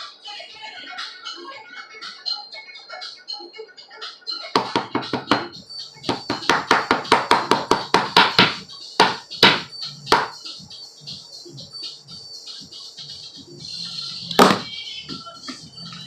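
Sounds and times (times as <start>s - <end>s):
background music: 0.0s - 16.0s
sharp knocks: 4.6s - 5.5s, 14.4s - 14.7s.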